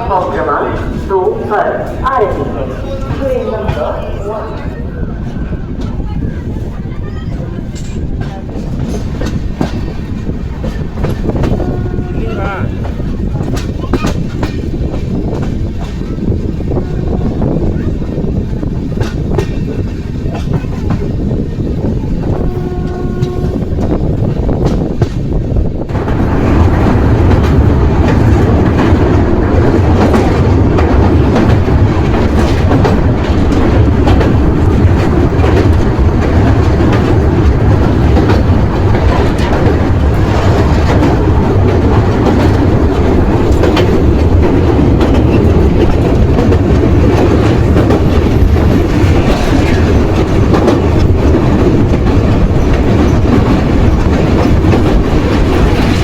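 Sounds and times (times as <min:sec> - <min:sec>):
train coaches rumbling: 0:00.0 - 0:56.0
wheels clicking over rail joints: 0:22.6 - 0:56.0.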